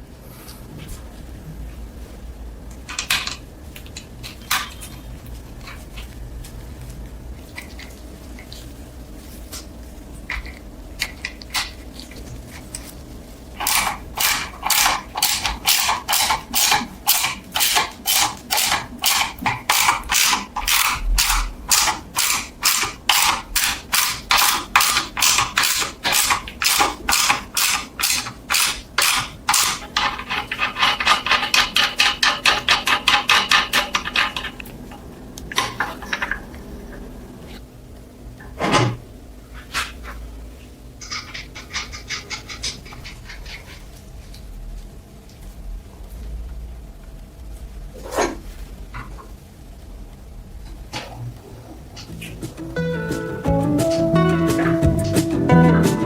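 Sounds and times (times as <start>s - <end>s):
hand tool scraping metal: 13.6s - 34.6s.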